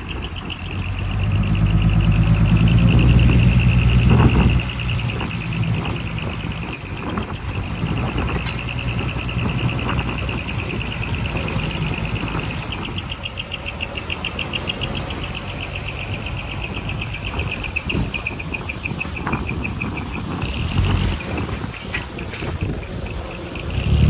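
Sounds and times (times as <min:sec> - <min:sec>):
high-pitched pulsing chirping: 0:00.0 - 0:21.4
diesel machinery rumbling: 0:00.0 - 0:24.0.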